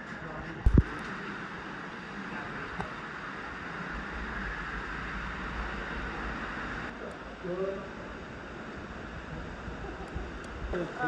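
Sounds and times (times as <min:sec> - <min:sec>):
wind rumble on microphone: 0:00.5 - 0:01.0, 0:08.1 - 0:11.0.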